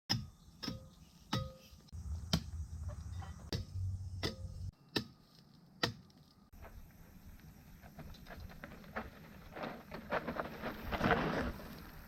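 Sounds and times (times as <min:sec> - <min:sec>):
low rumble of tyres on ground: 0:01.9 - 0:04.7, 0:06.2 - 0:12.0.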